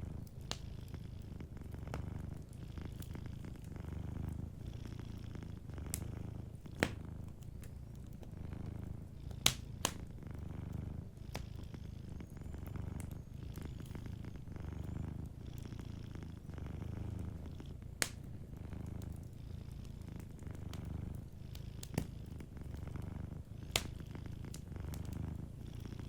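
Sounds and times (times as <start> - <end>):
wood fire crackling pops: 0.0 - 0.7, 1.7 - 4.4, 5.8 - 11.7, 17.2 - 25.4
cat purring: 0.0 - 26.0.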